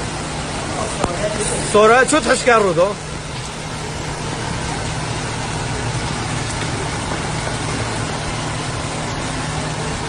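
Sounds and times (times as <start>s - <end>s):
rushing noise: 3.0s - 8.2s
vehicle engine humming: 3.0s - 8.6s.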